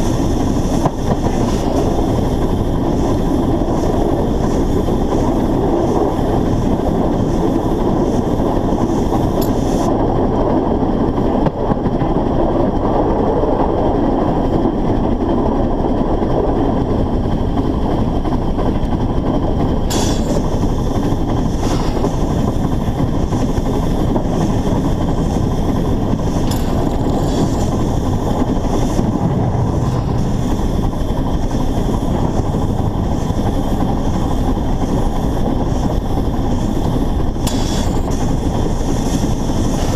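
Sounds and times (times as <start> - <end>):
steam locomotive rumble: 0.0 - 39.9.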